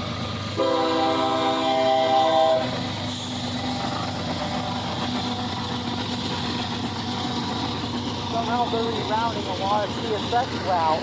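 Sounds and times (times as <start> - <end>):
train engine rumble: 0.0 - 11.0
train horn chord: 0.6 - 2.8.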